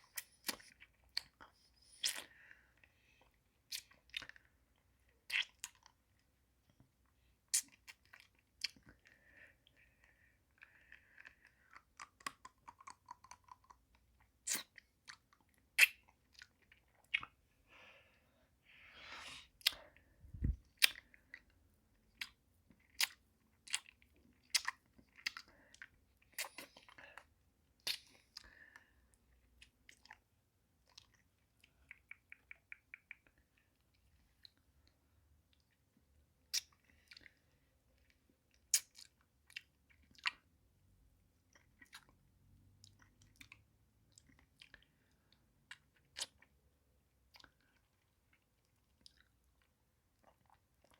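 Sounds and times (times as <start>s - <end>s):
wet mouth smacks: 31.8s - 33.4s.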